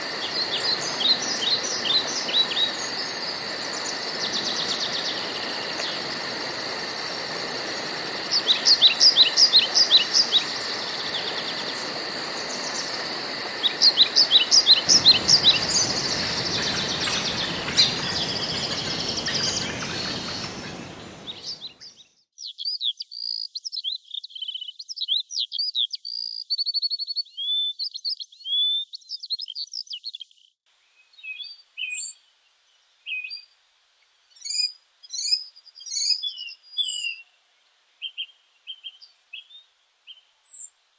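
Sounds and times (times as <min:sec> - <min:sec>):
insect trill: 0:00.0 - 0:21.7
background hiss: 0:00.0 - 0:21.9, 0:30.7 - 0:40.9
woodland birdsong: 0:00.0 - 0:40.8
bird whistling varied song: 0:13.6 - 0:22.0.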